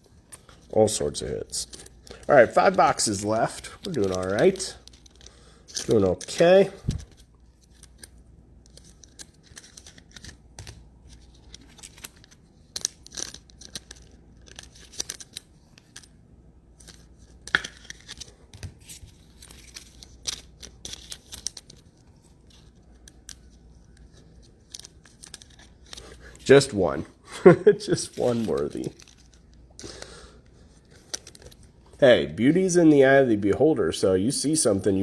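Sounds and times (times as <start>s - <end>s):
packaging tearing and crinkling: 1.6s - 8.1s, 11.2s - 16.0s.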